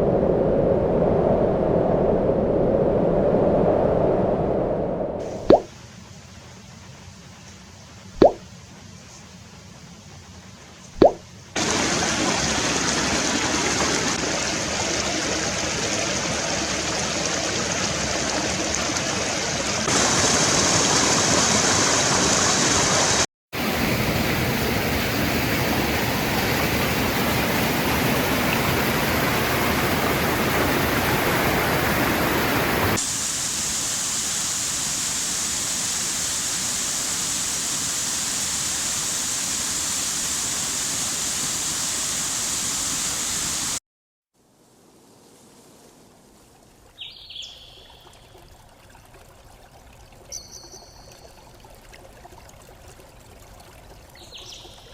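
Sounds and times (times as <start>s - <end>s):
rushing stream water: 11.0s - 43.8s.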